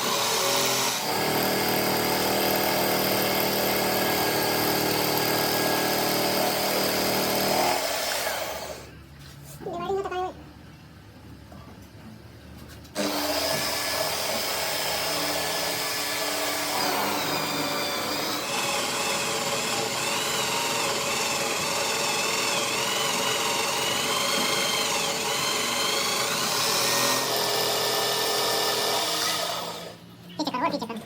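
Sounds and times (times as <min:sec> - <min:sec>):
electric power tool whining: 0:13.0 - 0:30.0.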